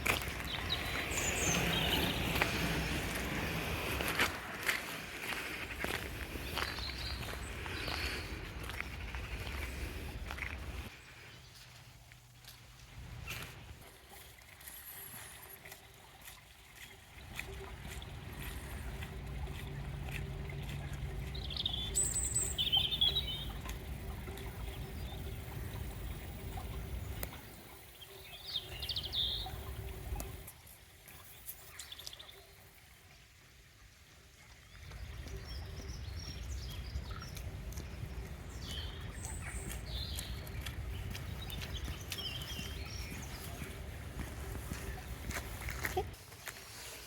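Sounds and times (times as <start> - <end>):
birds chirping: 0.0 - 11.8, 16.7 - 30.5, 34.7 - 46.2
low outdoor rumble: 17.2 - 27.8
high bird chirps: 21.3 - 23.6.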